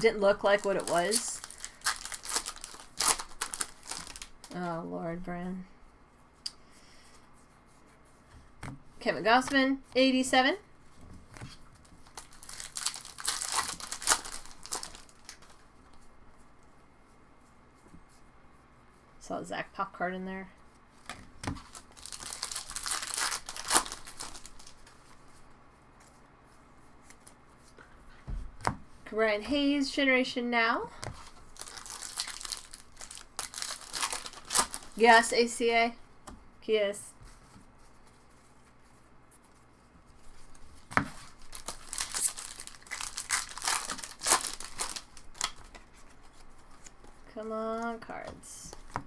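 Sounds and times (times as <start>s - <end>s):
wrapper tearing and crinkling: 0.0s - 4.5s, 12.0s - 15.6s, 21.6s - 25.2s, 31.2s - 35.4s, 40.8s - 46.9s
wrapper snap: 12.1s - 15.5s, 21.6s - 24.9s, 31.1s - 35.3s, 41.2s - 45.8s.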